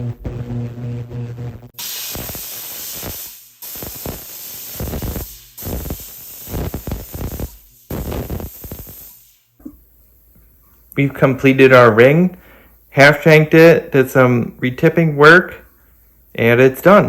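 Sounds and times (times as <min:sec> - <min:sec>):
steam cleaner hissing jets: 0:01.8 - 0:09.5.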